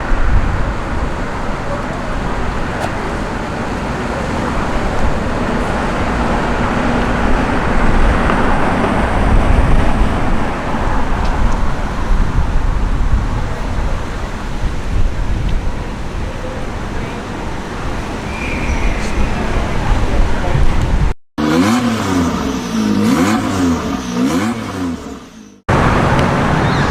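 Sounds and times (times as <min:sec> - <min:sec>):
car engines: 0:00.0 - 0:26.9
tyre noise: 0:00.0 - 0:26.9.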